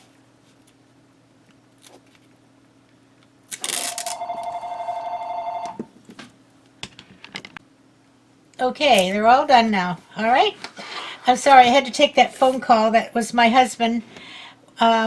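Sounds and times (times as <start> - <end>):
telephone two-tone ring: 3.9 - 5.8.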